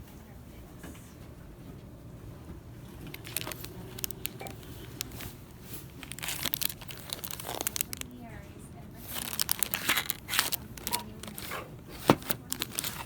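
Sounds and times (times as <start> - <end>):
low background hum: 0.0 - 13.0
plastic packaging crinkling: 2.9 - 13.0.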